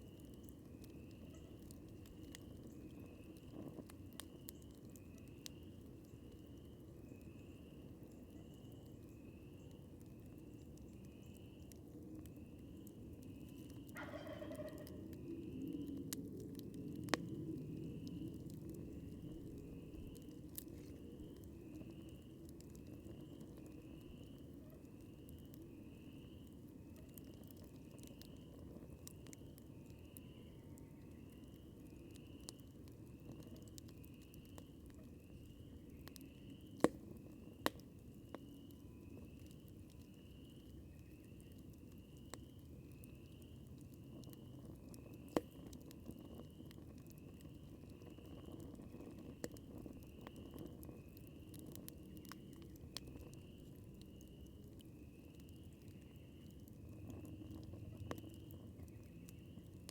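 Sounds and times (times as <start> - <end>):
campfire crackling: 0.0 - 59.9
wild turkey gobbling: 13.9 - 15.0.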